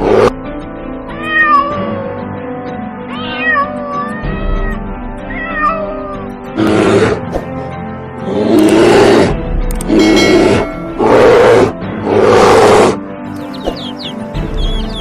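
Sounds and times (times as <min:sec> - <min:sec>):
background music: 0:00.0 - 0:15.0
cat meowing: 0:01.1 - 0:02.2, 0:03.1 - 0:06.2
lion roar: 0:06.6 - 0:07.3, 0:08.2 - 0:13.0.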